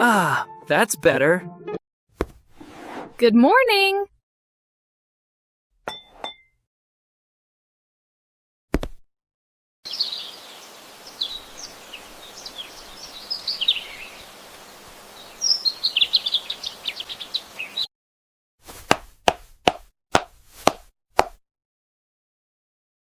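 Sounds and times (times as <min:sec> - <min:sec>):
faint steady hiss: 0:09.9 - 0:17.7
birds chirping: 0:09.9 - 0:17.9.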